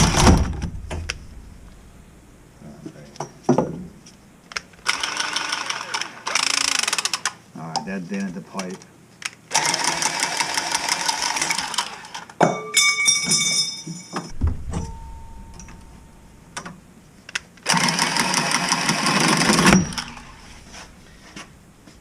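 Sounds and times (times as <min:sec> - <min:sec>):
handheld power tool running: 0:04.8 - 0:07.3, 0:09.5 - 0:12.2, 0:17.6 - 0:20.4
metallic clank: 0:12.5 - 0:16.8.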